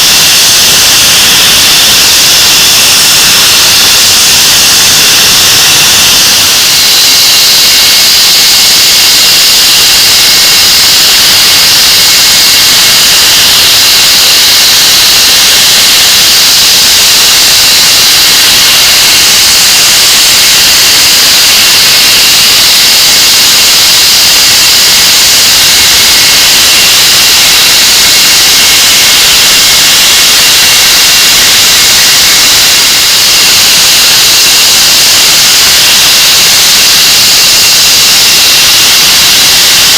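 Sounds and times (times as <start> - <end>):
jet engine roar: 0.0 - 15.2
jet engine high whine: 0.0 - 39.9.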